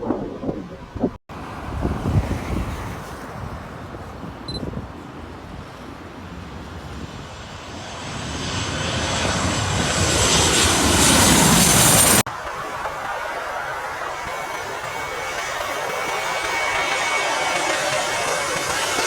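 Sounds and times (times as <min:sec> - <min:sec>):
airliner engines passing: 0:04.9 - 0:19.0
high engine whine: 0:07.0 - 0:19.0.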